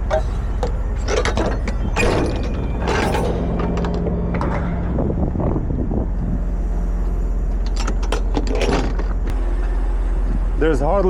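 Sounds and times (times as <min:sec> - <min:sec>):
metallic jangling clicks: 0:00.0 - 0:04.5
diesel truck engine idling: 0:03.9 - 0:11.0.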